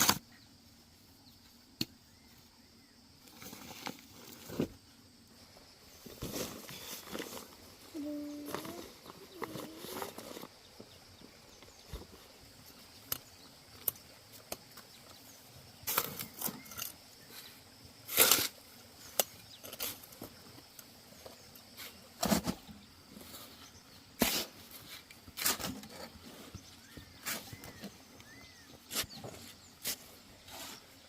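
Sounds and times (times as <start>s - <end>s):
irregular knocks and scrapes: 21.3s - 30.9s.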